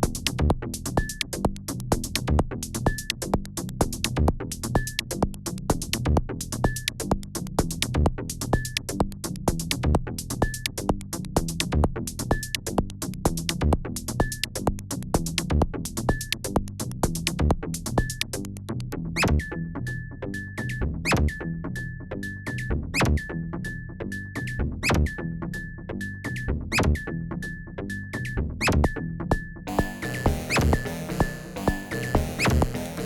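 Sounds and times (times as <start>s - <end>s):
drum machine beat: 0.0s - 18.6s, 29.7s - 33.0s
synth bass line: 29.7s - 33.0s
synth rising sweep: 29.7s - 33.0s.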